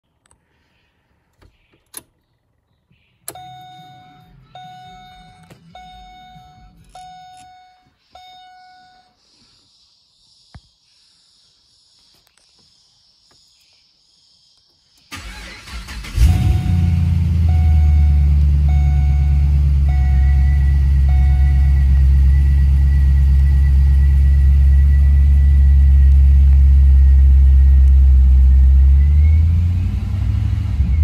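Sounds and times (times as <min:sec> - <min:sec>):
car warning chime dinging: 0:03.3 - 0:09.2, 0:16.2 - 0:23.9
car engine cranking and starting: 0:15.0 - 0:31.0.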